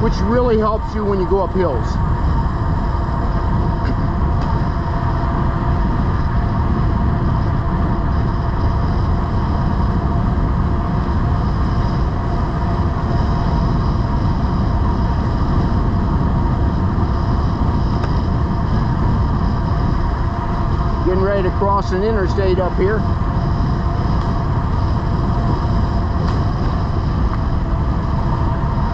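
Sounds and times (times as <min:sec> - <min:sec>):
bicycle tyre noise: 0:00.0 - 0:28.9
steady whine: 0:00.0 - 0:28.9
wind rush on microphone: 0:00.0 - 0:28.9.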